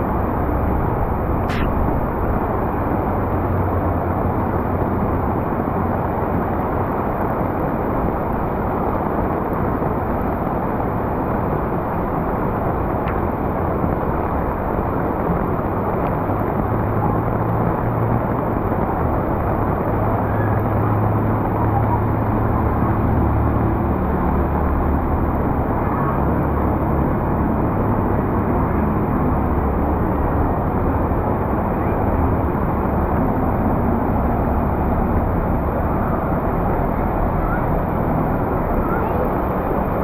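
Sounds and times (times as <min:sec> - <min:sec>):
heavy rain: 0:01.5 - 0:40.0
vehicle engines humming: 0:19.6 - 0:40.0.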